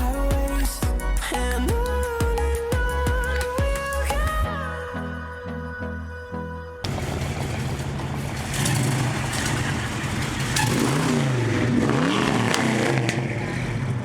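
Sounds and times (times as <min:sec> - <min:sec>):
car engine running: 0:06.9 - 0:14.0.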